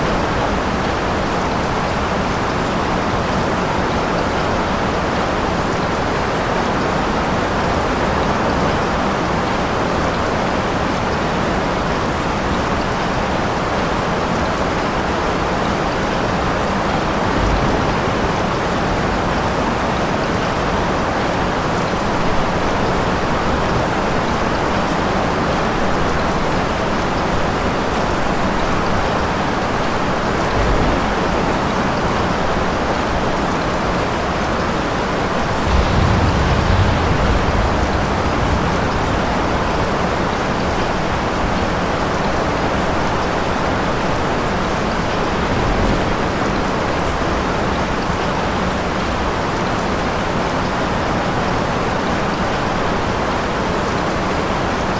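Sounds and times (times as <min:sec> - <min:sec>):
heavy rain: 0:00.0 - 0:54.9
thunder rumble: 0:16.2 - 0:27.1, 0:29.7 - 0:33.2, 0:35.0 - 0:43.3
low thuds: 0:35.5 - 0:41.7.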